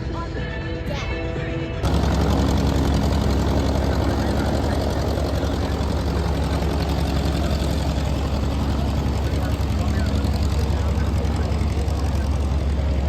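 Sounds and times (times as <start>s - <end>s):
music: 0.0s - 1.9s
propeller aircraft engine droning: 1.7s - 13.0s.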